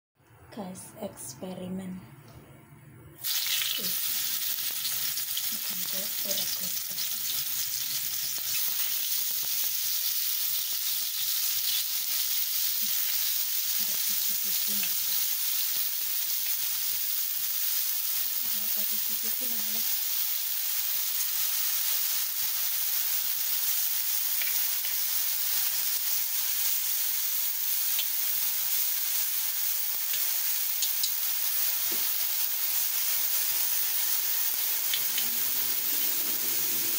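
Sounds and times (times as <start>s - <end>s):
mushrooms sizzling in hot oil: 3.2s - 36.9s.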